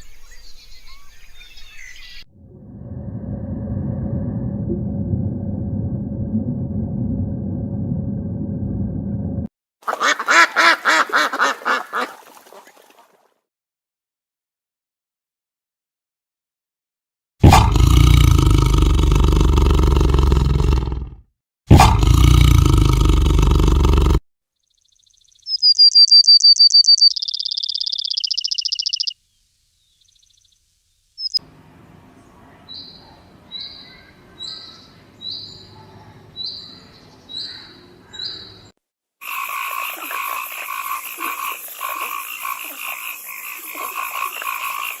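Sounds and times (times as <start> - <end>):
frogs chorus: 25.2 - 29.1, 39.2 - 45.0
high chirps: 25.4 - 29.2, 31.2 - 31.4.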